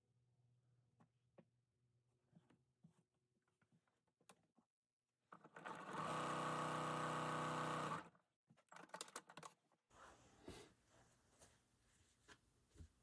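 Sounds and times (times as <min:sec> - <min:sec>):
sewing machine running: 0:05.5 - 0:08.1.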